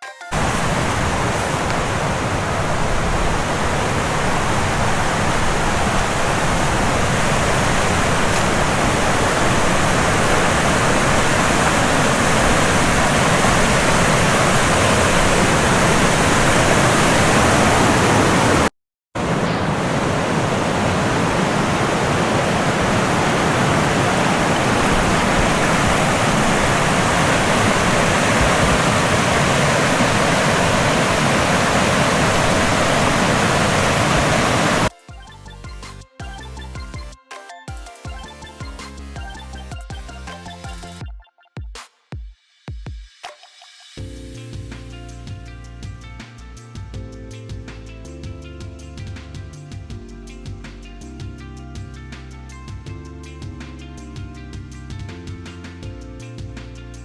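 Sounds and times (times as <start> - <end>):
rushing water: 0.3 - 34.9.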